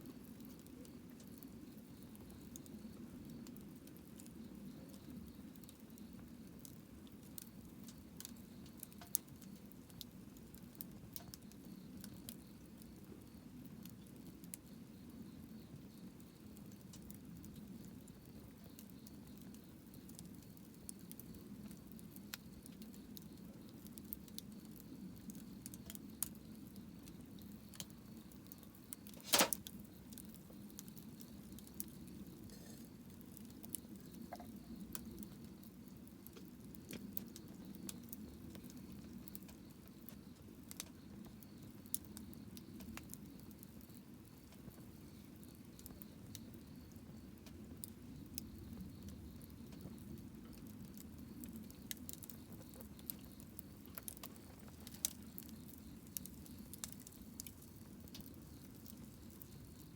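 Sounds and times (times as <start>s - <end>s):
campfire crackling: 0.0s - 59.9s
loud sharp fire pop: 29.2s - 29.6s.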